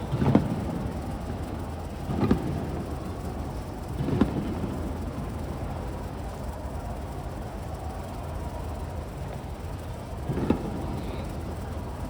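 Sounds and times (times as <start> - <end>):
fireworks booming: 10.3 - 10.9.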